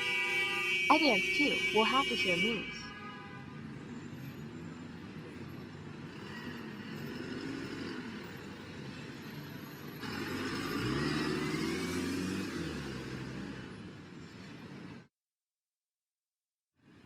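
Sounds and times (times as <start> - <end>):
car engine driving: 10.0 - 14.0.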